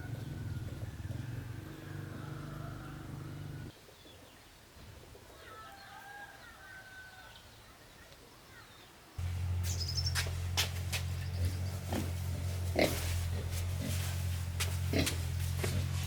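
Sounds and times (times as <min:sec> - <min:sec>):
faint bird chirping: 0:05.3 - 0:10.3
steady low hum: 0:09.2 - 0:16.0.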